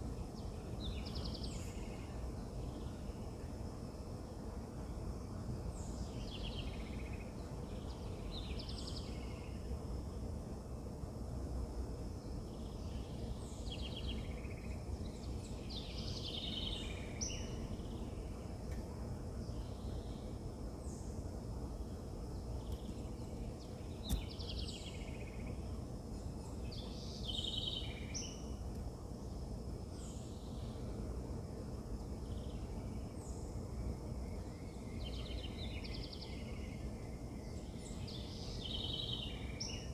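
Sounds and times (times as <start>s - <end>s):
low outdoor rumble: 0.0s - 39.9s
sharp click: 24.0s - 24.3s.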